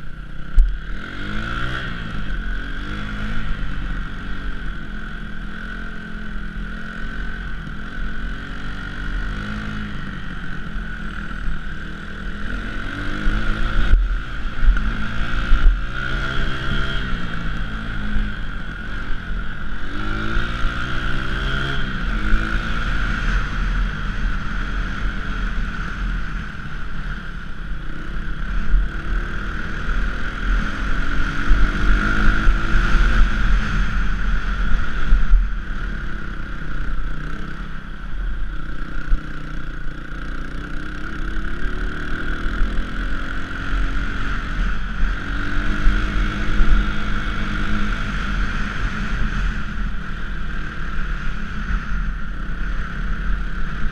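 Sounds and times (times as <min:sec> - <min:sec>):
dirt bike engine revving: 0:00.8 - 0:04.6, 0:05.4 - 0:37.8.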